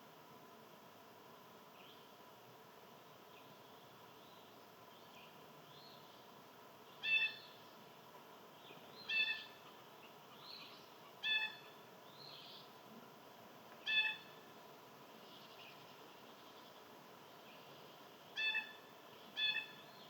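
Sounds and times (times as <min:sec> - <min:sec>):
faint bird chirps: 0:06.9 - 0:07.8, 0:08.5 - 0:12.8, 0:13.8 - 0:14.4, 0:15.2 - 0:20.0.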